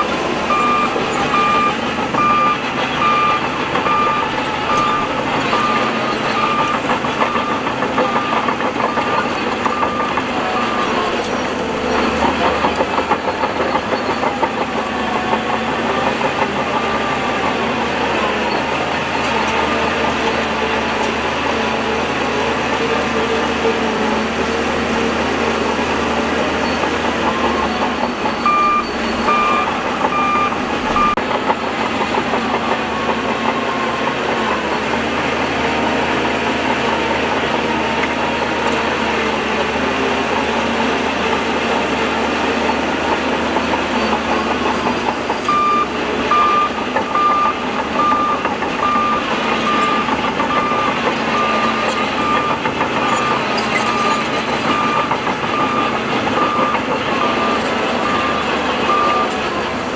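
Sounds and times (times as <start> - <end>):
reversing alarm beeping: 0.0 - 12.9, 24.4 - 31.2, 45.3 - 59.6
heavy machinery running: 0.0 - 59.9.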